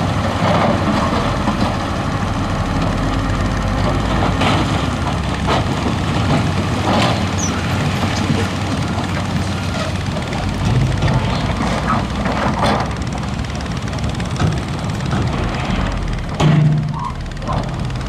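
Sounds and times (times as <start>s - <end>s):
diesel machine running: 0.0s - 18.0s
sharp knocks: 16.4s - 17.0s.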